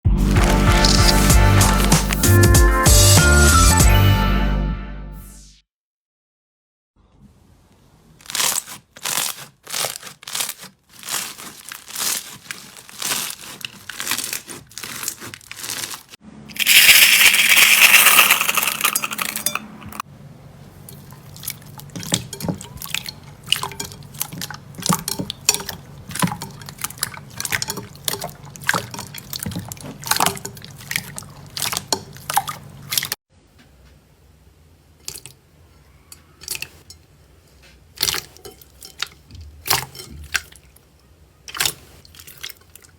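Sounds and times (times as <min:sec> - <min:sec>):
slime squishing with sticky pops: 0:08.2 - 0:16.1.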